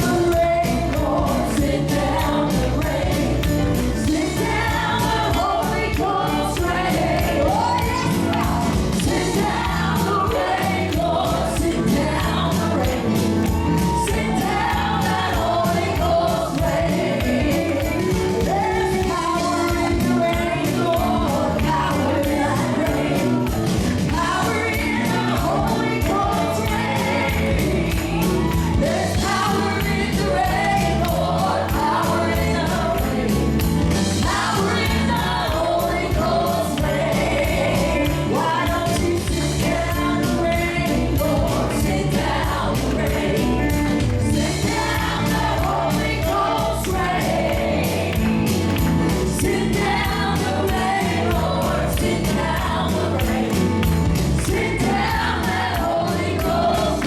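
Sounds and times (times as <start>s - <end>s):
band playing: 0.0s - 57.0s
gospel singing: 0.0s - 57.0s
steady drum beat: 0.0s - 57.0s.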